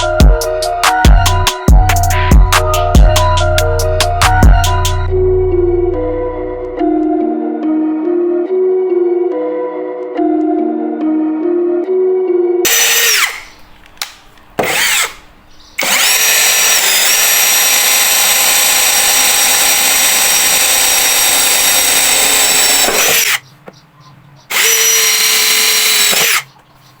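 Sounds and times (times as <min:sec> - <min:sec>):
electric power tool whining: 0:12.7 - 0:13.6, 0:14.6 - 0:23.4, 0:24.5 - 0:26.5.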